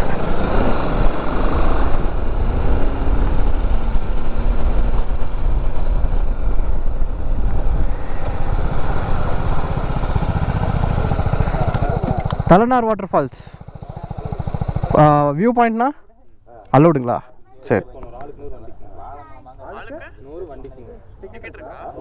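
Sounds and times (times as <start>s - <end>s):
motorcycle engine running: 0.0s - 15.8s.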